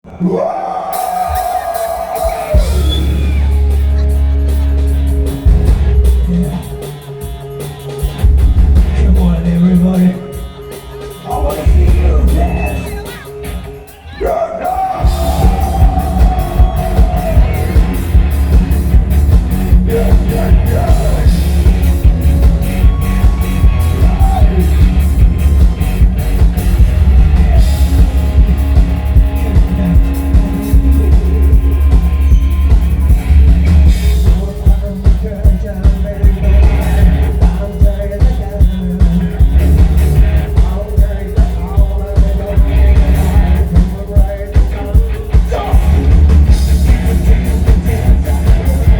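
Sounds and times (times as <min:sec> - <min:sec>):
electric guitar and bass: 0:00.0 - 0:48.9
drum beat: 0:01.0 - 0:48.9
person singing: 0:09.0 - 0:18.4, 0:19.7 - 0:25.1, 0:34.0 - 0:48.9.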